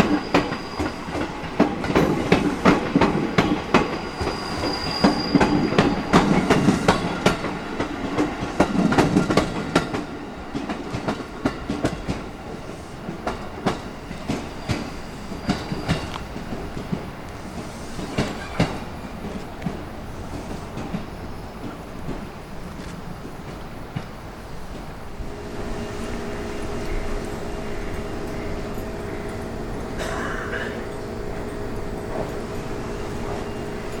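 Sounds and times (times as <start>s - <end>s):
thin wheel squeal: 0.0s - 1.3s, 3.3s - 6.2s
wheels clicking over rail joints: 0.0s - 25.0s
train cars rumbling by: 0.0s - 34.0s.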